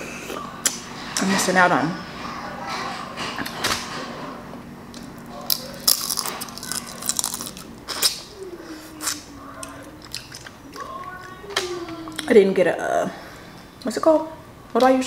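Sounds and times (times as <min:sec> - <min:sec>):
chewing and wet mouth sounds: 0:04.9 - 0:12.3.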